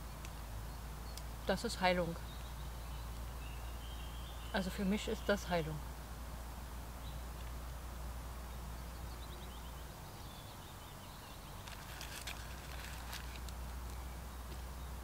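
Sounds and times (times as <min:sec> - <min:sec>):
small bird singing: 0:00.0 - 0:05.7, 0:07.0 - 0:07.4, 0:08.4 - 0:15.0
short rustles: 0:11.6 - 0:13.7.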